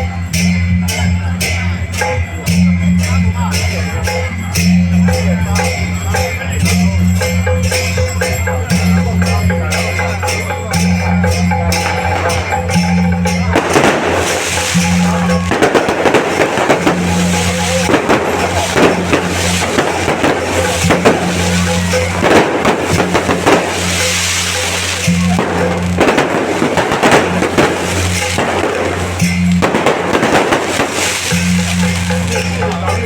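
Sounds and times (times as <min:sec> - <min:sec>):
procession music: 0:00.8 - 0:33.0
firecrackers popping: 0:06.7 - 0:33.0.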